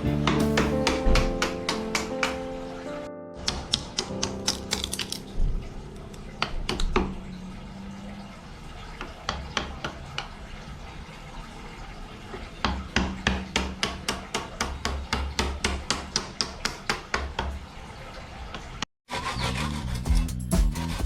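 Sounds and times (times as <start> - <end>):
hand tool striking wood: 0.0 - 2.4.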